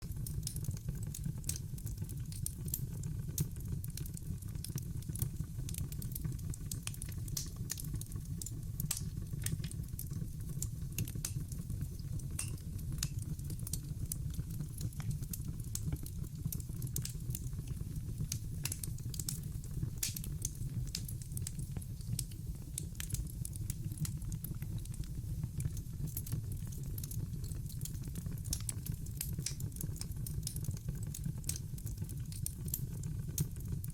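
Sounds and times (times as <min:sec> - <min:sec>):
logs crackling in a fireplace: 0:00.0 - 0:33.9.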